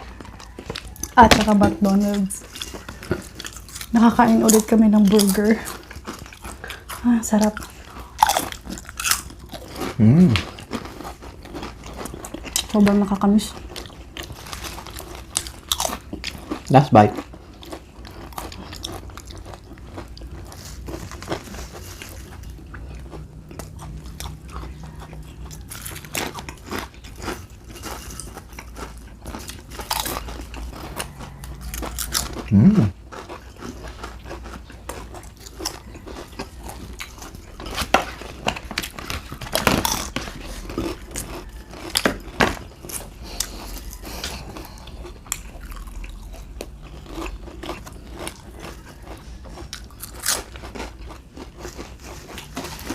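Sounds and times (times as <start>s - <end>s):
chewing and crunching food: 0.0s - 52.9s
low voice humming: 10.0s - 10.4s, 32.5s - 32.9s.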